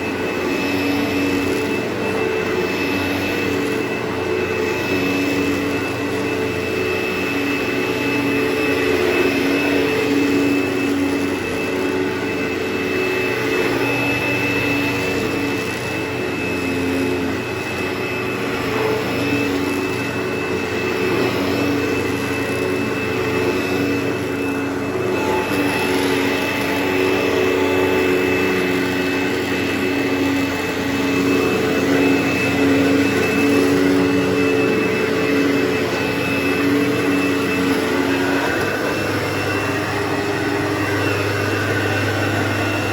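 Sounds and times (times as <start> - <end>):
vacuum motor whining hum: 0.0 - 42.9.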